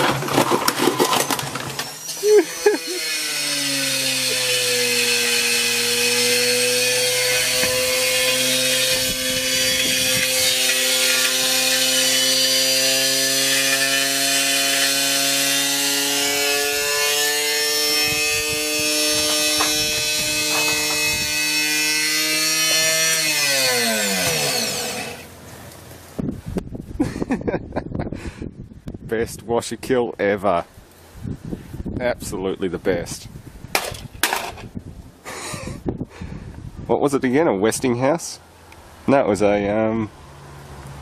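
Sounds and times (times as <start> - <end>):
drum rattling and knocking: 19.2 - 21.1.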